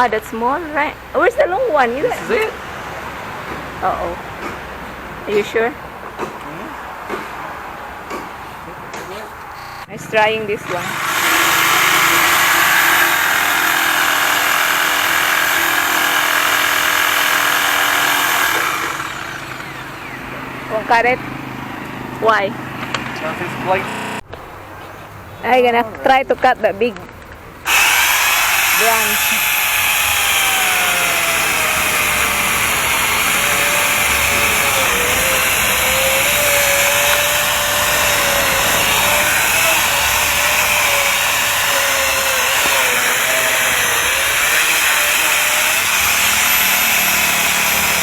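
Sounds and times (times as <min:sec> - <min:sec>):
reciprocating saw running: 0:10.6 - 0:20.8, 0:22.2 - 0:24.3, 0:27.7 - 0:48.0.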